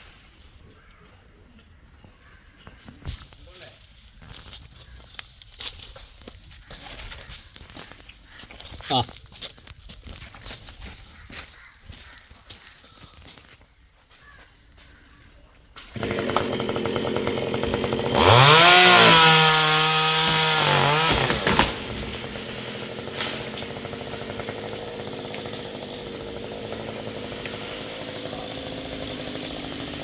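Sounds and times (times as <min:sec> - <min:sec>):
chainsaw engine revving: 0:15.9 - 0:30.0.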